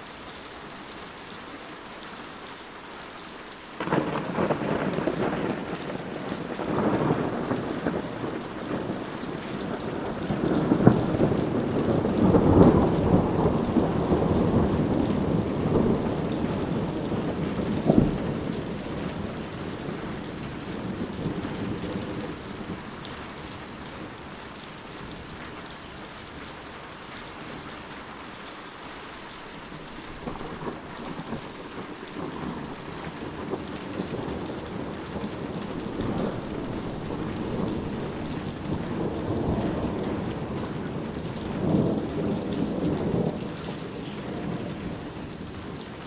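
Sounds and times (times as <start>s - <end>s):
steady rain: 0.0s - 46.0s
thunder crack: 3.8s - 22.8s, 30.2s - 45.8s
thunder rumbling: 3.8s - 25.6s, 29.8s - 46.0s.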